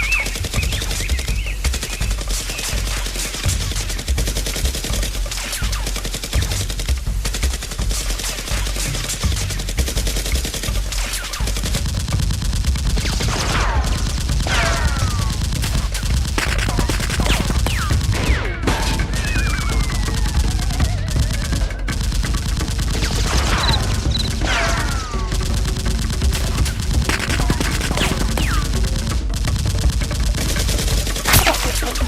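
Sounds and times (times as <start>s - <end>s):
falling whistles: 0.0s - 4.1s, 19.1s - 21.7s
rapid gunfire bursts: 0.0s - 32.0s.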